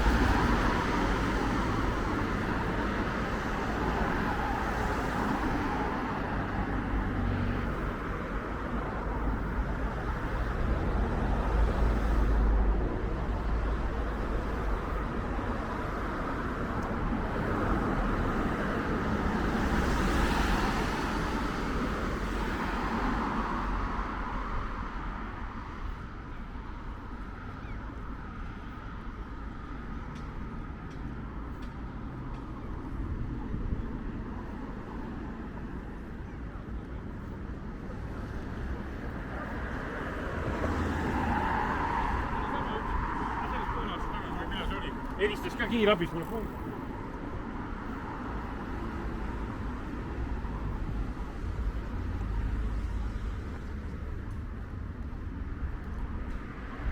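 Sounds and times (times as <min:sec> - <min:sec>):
road traffic rumble: 0:00.0 - 0:56.9
vehicle passing: 0:38.0 - 0:46.9.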